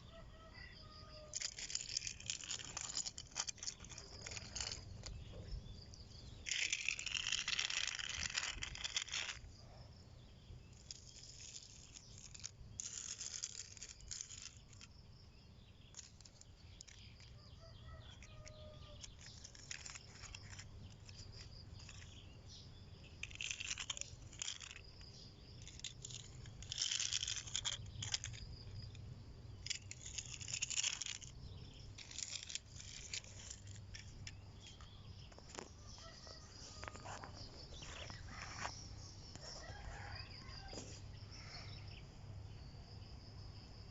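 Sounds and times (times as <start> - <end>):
metal toy scraping over ground: 0.1 - 42.0.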